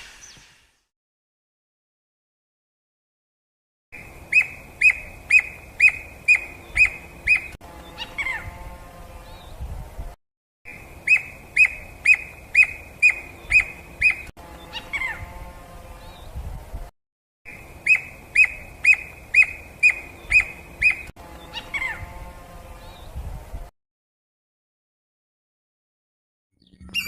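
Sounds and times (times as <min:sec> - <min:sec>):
bird whistled song: 0:04.0 - 0:08.0, 0:10.7 - 0:14.3, 0:17.5 - 0:21.7, 0:26.6 - 0:27.0.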